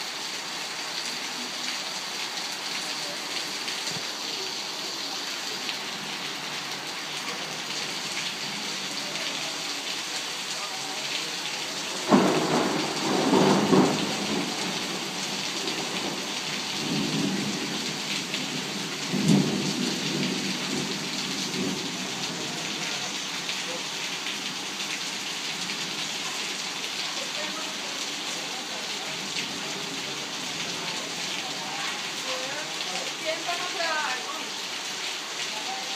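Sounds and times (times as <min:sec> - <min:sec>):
torrential rain pouring: 0:00.0 - 0:35.9
thunder rumbling: 0:11.9 - 0:22.6.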